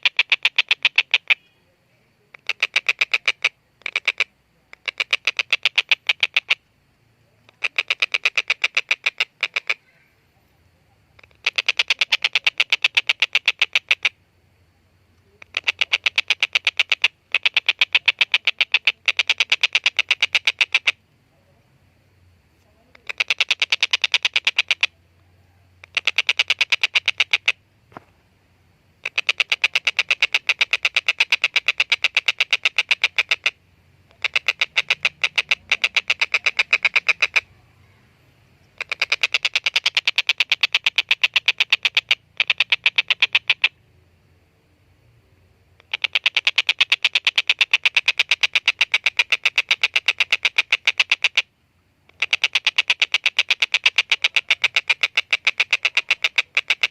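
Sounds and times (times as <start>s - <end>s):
kingfisher chattering call: 2.4s - 6.6s, 7.6s - 9.9s, 11.2s - 14.2s, 15.4s - 21.0s, 23.0s - 24.9s, 25.8s - 27.6s, 29.0s - 37.6s, 38.8s - 43.8s, 45.8s - 51.5s, 52.1s - 56.9s.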